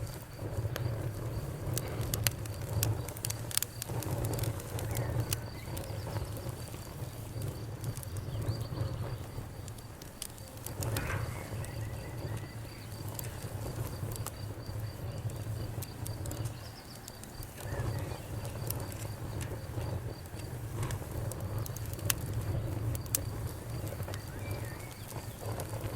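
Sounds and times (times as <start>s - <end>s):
low rumble of flames: 0.0s - 25.9s
wood fire crackling and popping: 0.0s - 25.9s.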